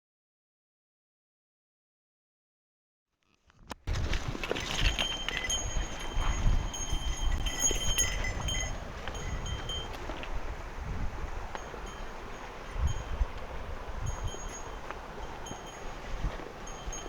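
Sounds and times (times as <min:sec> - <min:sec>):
wind rumble on microphone: 0:03.9 - 0:17.0
small metal bell jingling: 0:04.6 - 0:10.0, 0:14.0 - 0:14.8, 0:16.7 - 0:17.0.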